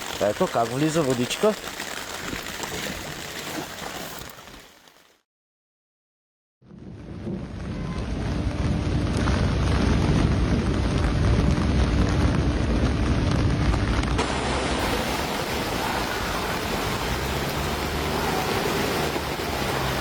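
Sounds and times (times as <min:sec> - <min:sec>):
heavy rain: 0:00.0 - 0:03.3, 0:07.5 - 0:20.0
low rumbling: 0:06.6 - 0:20.0.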